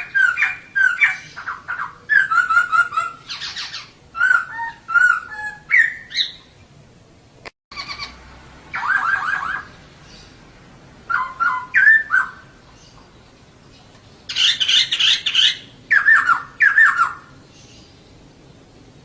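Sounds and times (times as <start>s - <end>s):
harsh bird chattering: 0.0s - 6.5s, 7.7s - 10.2s, 14.3s - 17.3s
bird calling with whistled notes: 0.0s - 6.6s, 7.7s - 10.4s, 11.1s - 18.7s.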